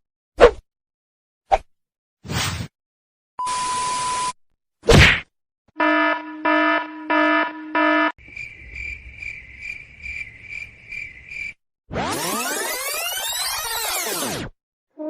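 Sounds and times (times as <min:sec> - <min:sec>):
harsh buzzer: 0:03.4 - 0:04.4, 0:05.8 - 0:08.2.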